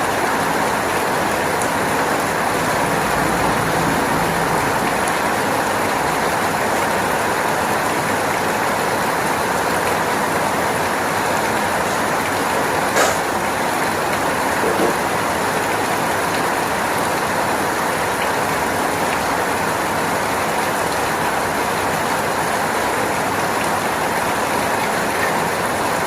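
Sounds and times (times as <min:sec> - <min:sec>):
heavy rain: 0:00.0 - 0:26.0
sharp tap: 0:13.0 - 0:13.3.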